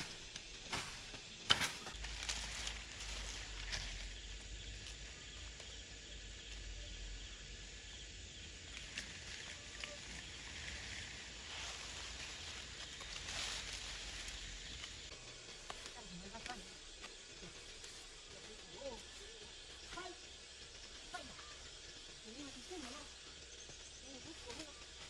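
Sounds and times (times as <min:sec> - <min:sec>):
steady hiss: 0:00.0 - 0:25.0
faint rapid high pulsing: 0:08.0 - 0:25.0.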